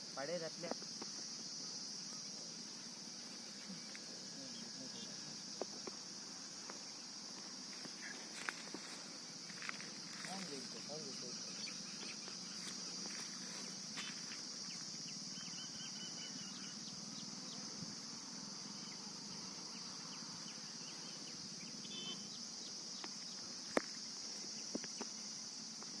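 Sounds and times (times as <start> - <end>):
insects shrilling: 0.0 - 26.0
faint bird chirps: 15.1 - 17.6.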